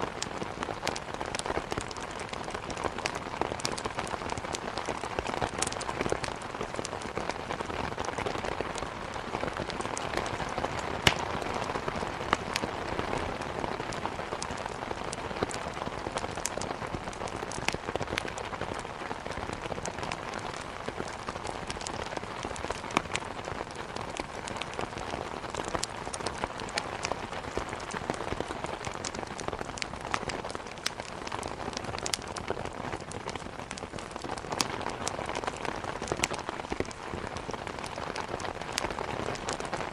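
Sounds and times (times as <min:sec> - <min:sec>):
firewood crackling: 0:00.0 - 0:39.9
rain hitting a window: 0:00.0 - 0:39.9.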